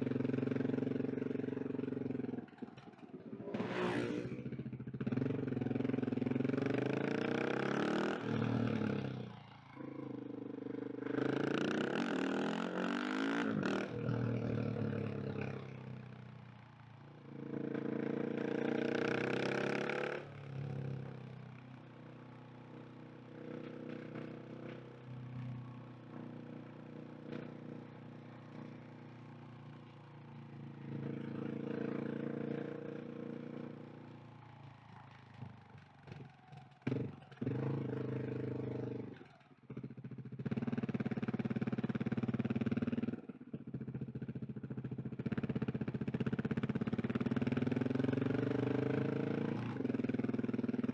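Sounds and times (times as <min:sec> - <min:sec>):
motorcycle engine accelerating: 0:00.0 - 0:16.1, 0:17.2 - 0:21.4, 0:22.7 - 0:50.9.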